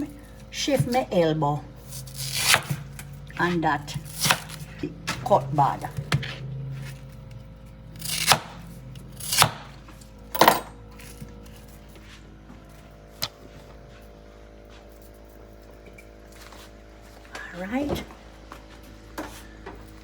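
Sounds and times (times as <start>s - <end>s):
knife chopping yam: 2.0s - 7.0s, 8.0s - 9.8s.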